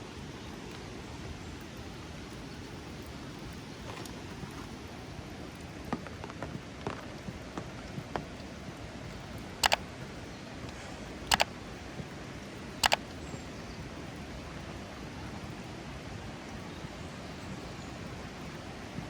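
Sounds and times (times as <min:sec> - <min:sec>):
rain falling: 0:00.0 - 0:19.0
sharp double clicks: 0:09.6 - 0:09.8, 0:11.3 - 0:11.5, 0:12.8 - 0:13.2.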